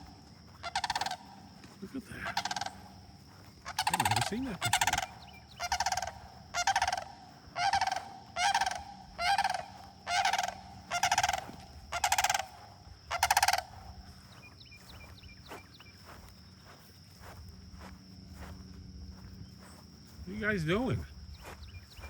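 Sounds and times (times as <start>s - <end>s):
cranes rattling calls: 0.0s - 16.0s.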